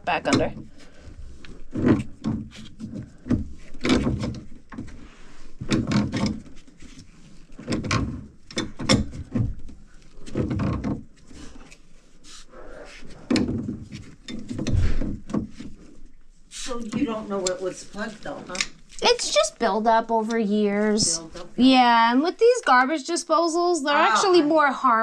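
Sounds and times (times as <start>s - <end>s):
scraping: 0.1s - 21.7s
wooden knocks and clunks: 1.5s - 5.0s, 5.6s - 6.8s, 7.4s - 11.2s, 13.2s - 15.9s.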